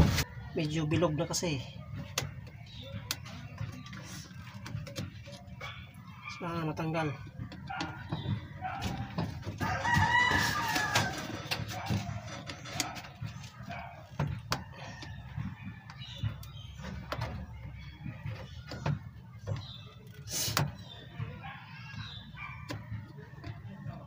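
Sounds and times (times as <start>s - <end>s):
hand tools clicking and tapping: 7.2s - 20.8s
rooster crowing: 9.6s - 11.5s.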